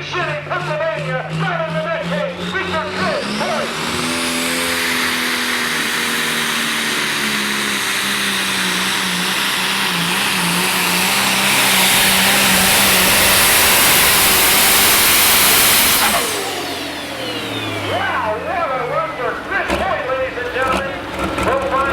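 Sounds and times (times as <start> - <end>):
tractor engine at full throttle: 0.0 - 21.9.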